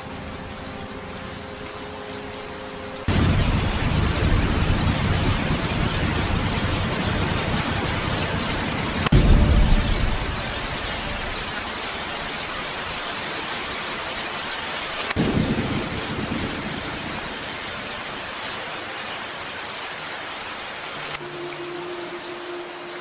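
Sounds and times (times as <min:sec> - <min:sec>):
heavy rain hissing: 0:00.0 - 0:23.0
thunder clap: 0:09.1 - 0:12.5.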